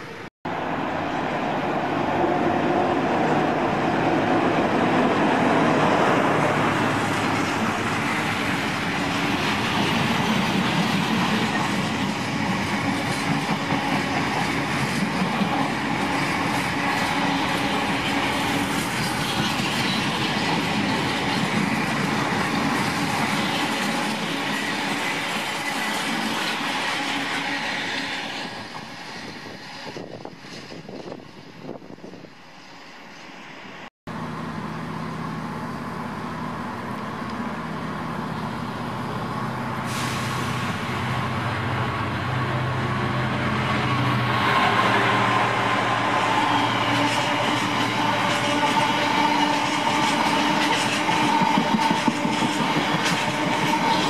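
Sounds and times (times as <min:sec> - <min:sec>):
diesel locomotive passing: 0:00.0 - 0:54.0
train wheels clattering on track: 0:04.4 - 0:31.4, 0:43.8 - 0:54.0.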